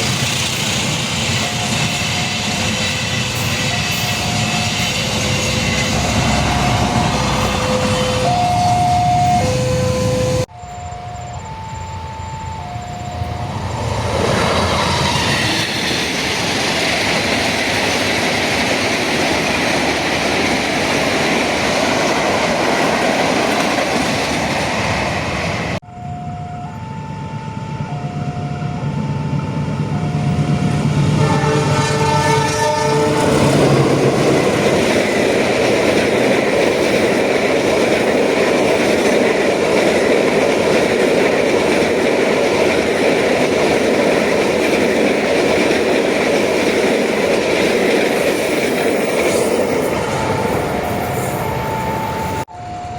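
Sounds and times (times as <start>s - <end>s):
passing train rumble: 0.0s - 52.9s
two-note warning tone: 3.7s - 13.8s, 25.8s - 33.2s, 49.8s - 52.9s
train horn chord: 26.0s - 34.3s.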